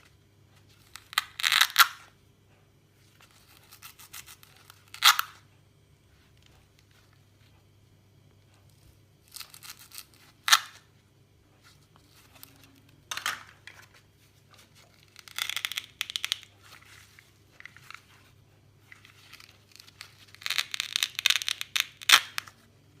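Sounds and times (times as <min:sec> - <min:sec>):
fruit tearing and crackling: 0:00.8 - 0:02.1, 0:03.2 - 0:05.4, 0:09.2 - 0:10.8, 0:14.6 - 0:18.1, 0:18.9 - 0:22.6.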